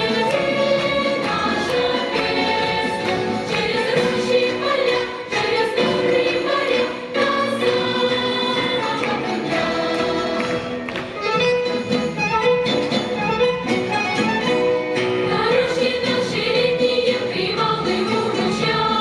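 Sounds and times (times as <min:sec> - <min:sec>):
choir singing in unison: 0:00.0 - 0:10.9, 0:15.3 - 0:19.0.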